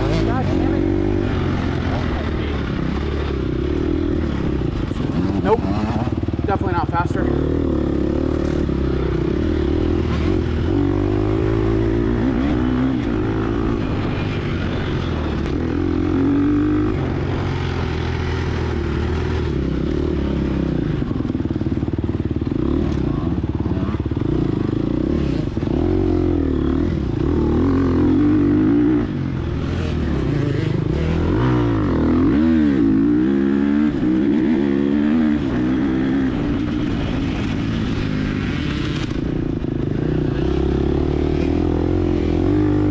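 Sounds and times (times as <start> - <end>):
dirt bike engine revving: 0.0 - 20.7, 22.5 - 42.9.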